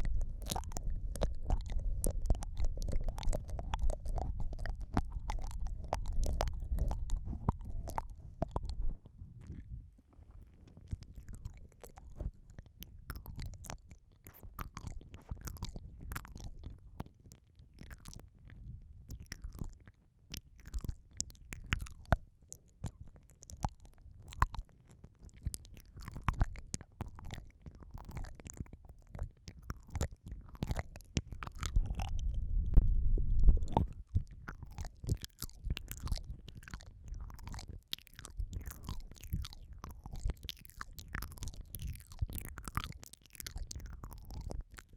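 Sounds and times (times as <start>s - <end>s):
wet mouth clicks and licking: 0.0s - 9.7s, 10.7s - 44.9s
low muffled rumble: 0.0s - 10.0s, 31.6s - 34.5s.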